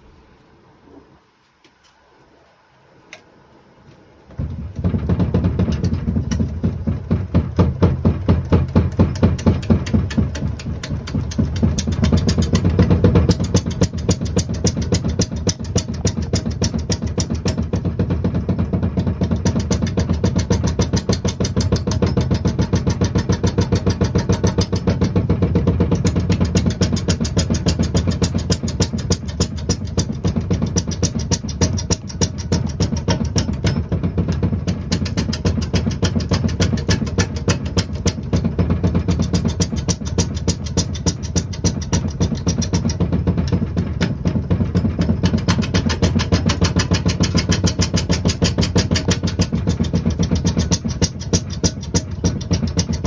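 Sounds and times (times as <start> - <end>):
fast regular knocking: 4.4 - 53.0
wood lathe running: 4.7 - 17.8.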